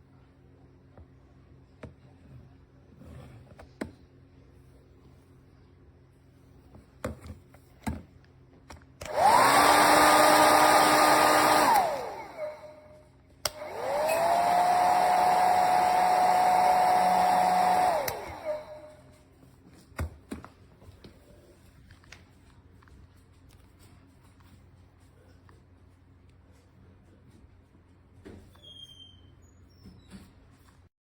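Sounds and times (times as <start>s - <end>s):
hair dryer blowing: 9.0s - 19.1s.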